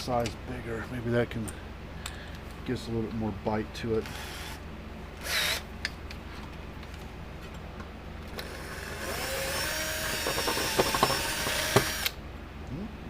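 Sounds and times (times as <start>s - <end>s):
electric drill whine: 5.2s - 5.6s, 8.4s - 12.2s.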